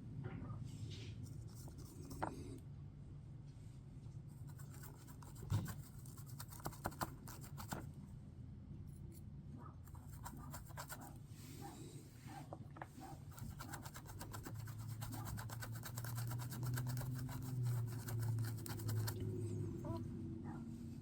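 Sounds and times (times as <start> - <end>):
brush scratching and rubbing: 4.4 - 7.8, 9.8 - 19.8.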